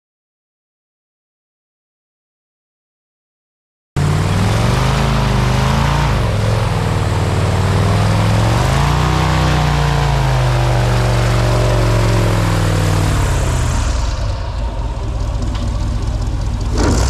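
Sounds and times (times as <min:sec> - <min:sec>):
airboat engine and propeller: 0:04.0 - 0:17.0.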